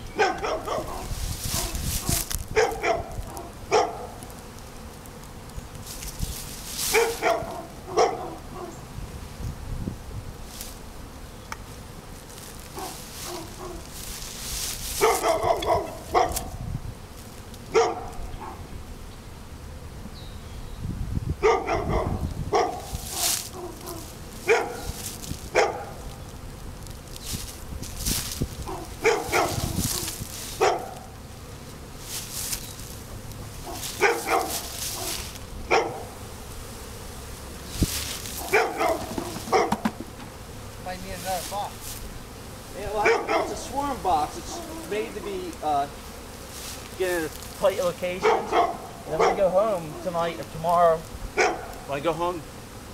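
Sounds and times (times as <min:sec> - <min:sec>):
honeybee swarm buzzing: 0:00.0 - 0:52.9
dog barking: 0:00.2 - 0:01.8, 0:02.6 - 0:04.2, 0:06.9 - 0:08.7, 0:12.8 - 0:13.8, 0:15.0 - 0:16.5, 0:17.7 - 0:18.6, 0:21.4 - 0:26.0, 0:28.7 - 0:31.0, 0:33.6 - 0:36.1, 0:38.4 - 0:39.8, 0:43.0 - 0:43.6, 0:44.5 - 0:44.9, 0:48.2 - 0:50.1, 0:51.4 - 0:51.8.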